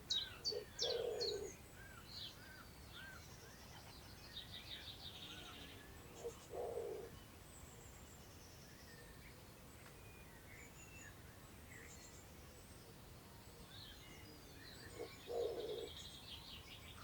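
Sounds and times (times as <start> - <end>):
wild birds singing: 0.0 - 9.4, 13.3 - 17.0
faint outdoor air hiss: 0.0 - 17.0.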